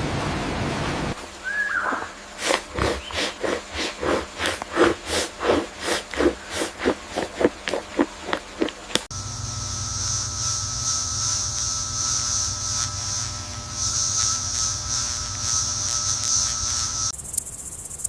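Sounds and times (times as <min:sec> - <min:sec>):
short sharp animal calls: 0:01.4 - 0:02.2.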